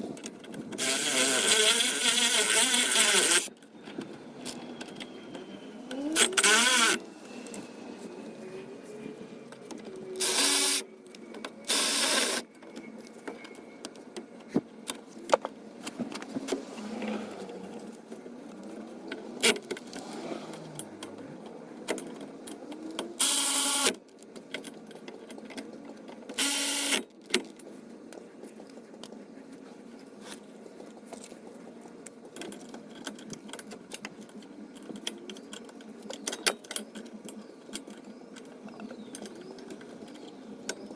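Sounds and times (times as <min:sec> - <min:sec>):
power wrench spinning bolts: 0:00.8 - 0:03.5, 0:06.2 - 0:07.0, 0:10.2 - 0:10.8, 0:11.7 - 0:12.4, 0:23.2 - 0:23.9, 0:26.4 - 0:27.0.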